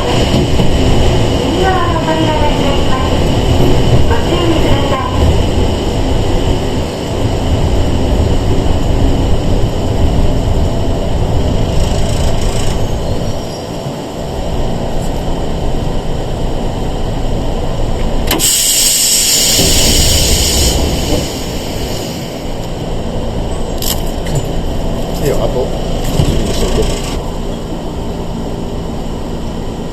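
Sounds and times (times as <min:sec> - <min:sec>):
train carriage rumble: 0:00.0 - 0:29.9
high hiss: 0:18.4 - 0:22.6.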